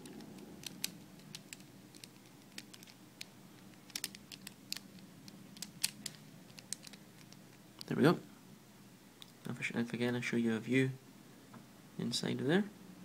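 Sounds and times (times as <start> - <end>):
plastic puzzle pieces clicking: 0.0 - 7.9.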